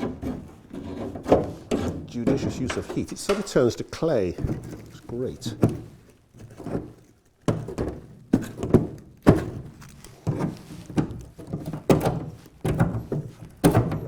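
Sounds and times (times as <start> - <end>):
scraper scraping metal: 0.0 - 7.1.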